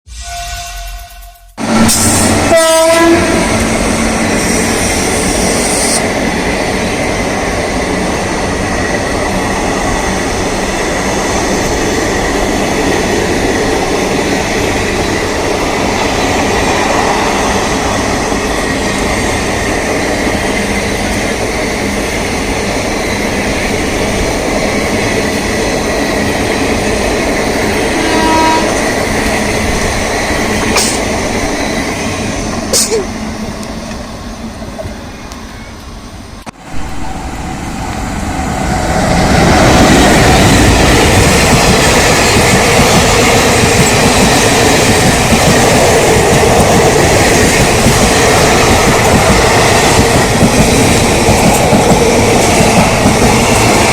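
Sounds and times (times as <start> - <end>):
train horn: 0.1 - 3.7, 27.9 - 29.2
train wheels rumbling on rails: 0.6 - 53.9.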